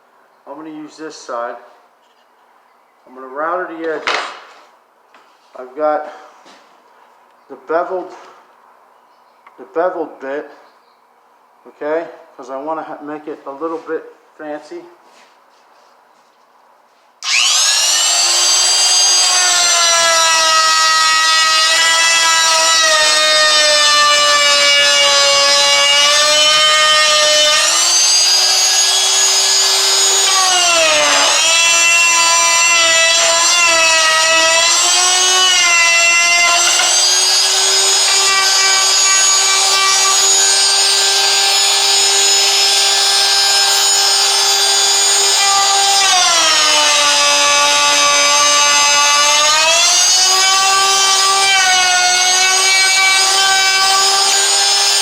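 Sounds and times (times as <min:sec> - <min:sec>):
wood router whining: 0:17.2 - 0:55.0.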